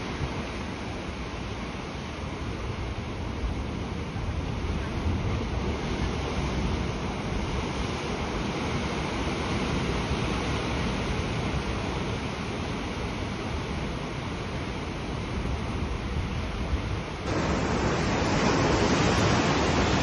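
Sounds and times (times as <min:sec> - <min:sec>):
sea surf rushing: 0:00.0 - 0:20.0.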